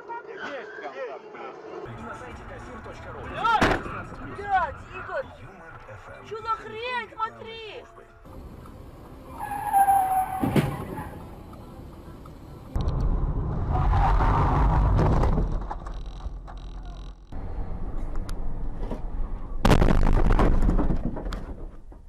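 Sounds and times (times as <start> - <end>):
tire squeal: 0.3 - 1.1, 9.2 - 11.5, 13.7 - 14.9
low road and wind rumble: 1.9 - 7.0, 8.3 - 22.0
crash bang: 3.6 - 4.5, 12.8 - 15.9, 19.6 - 21.8.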